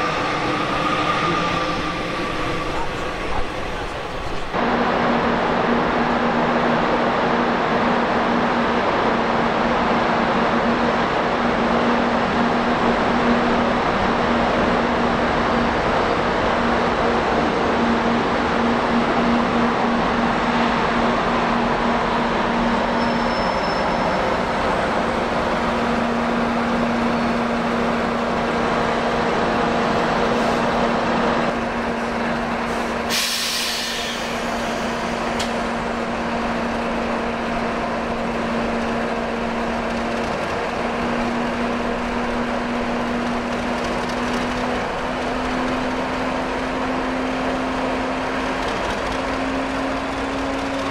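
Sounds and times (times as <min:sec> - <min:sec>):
train hum and rumble: 0:00.0 - 0:50.9
air brake hiss: 0:32.7 - 0:35.5.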